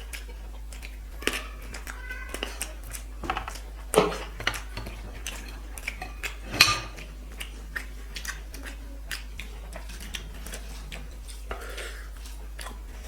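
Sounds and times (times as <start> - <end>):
dishes and tableware clinking: 2.4 - 7.5.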